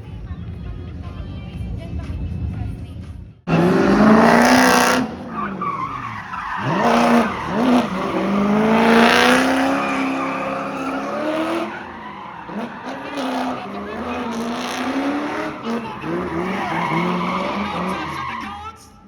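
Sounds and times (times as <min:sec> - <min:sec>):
car engine revving: 0:03.5 - 0:18.4
tyres squealing: 0:03.5 - 0:18.6.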